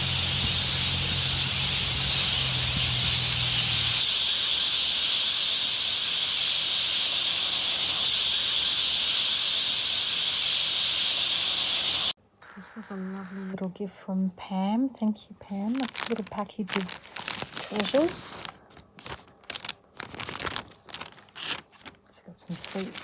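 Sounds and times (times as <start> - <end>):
steady high hiss: 4.0 - 12.2.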